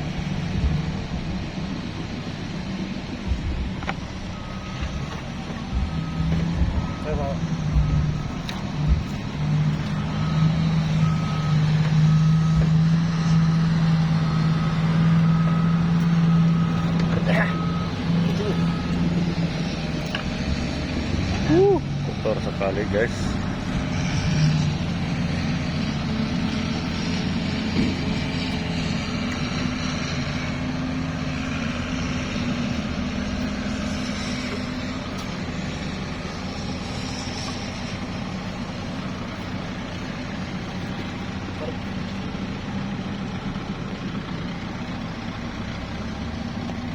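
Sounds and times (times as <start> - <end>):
engine droning: 0.0 - 46.9
reversing alarm beeping: 2.5 - 35.5.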